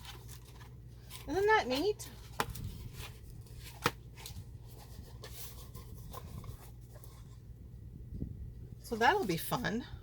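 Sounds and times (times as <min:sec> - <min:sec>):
paper pages rustling: 0:00.0 - 0:07.4.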